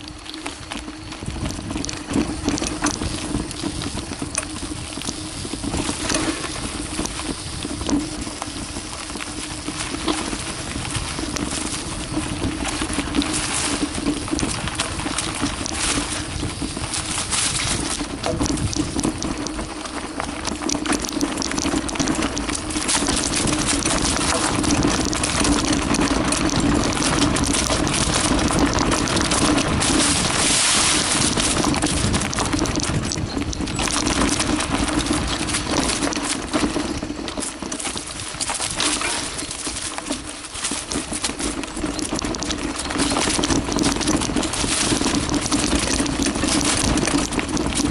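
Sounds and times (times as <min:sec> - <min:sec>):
bike rattling over bumps: 0:00.0 - 0:47.9
bike tyres on dirt and stones: 0:00.0 - 0:47.9.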